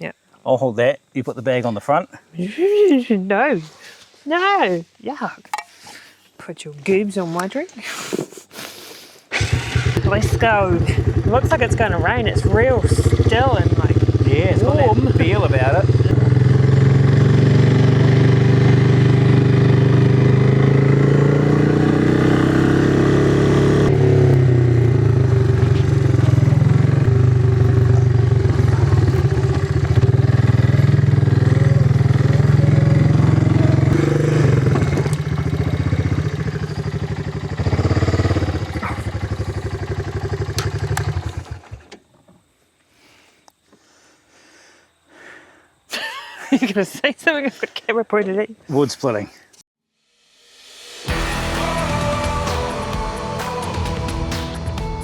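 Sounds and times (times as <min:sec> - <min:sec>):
vehicle engine running: 0:09.4 - 0:41.9.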